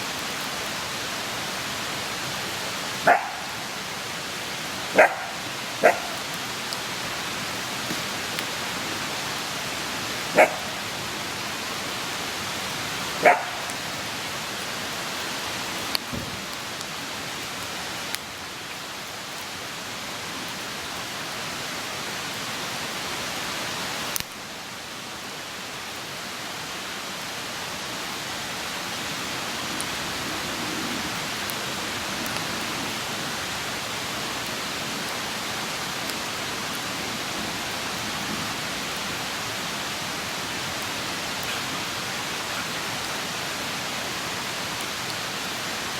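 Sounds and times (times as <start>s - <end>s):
campfire hissing and popping: 0.0s - 24.6s, 28.0s - 45.9s
dog barking: 3.0s - 3.6s, 4.9s - 6.2s, 10.4s - 10.8s, 13.2s - 13.8s.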